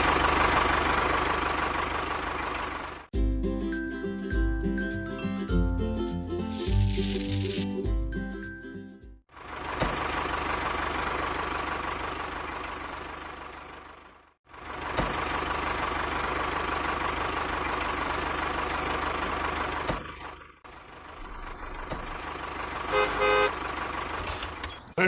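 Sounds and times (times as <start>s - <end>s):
small motor running: 6.5s - 7.6s.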